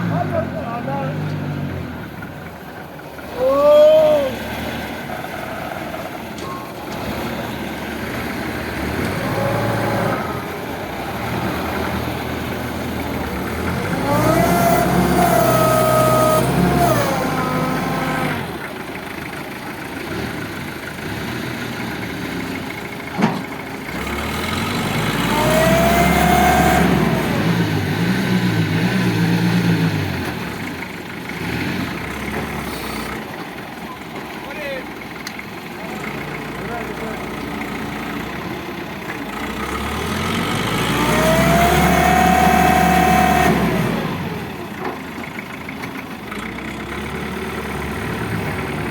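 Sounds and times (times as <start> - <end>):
truck engine revving: 0.0 - 48.9.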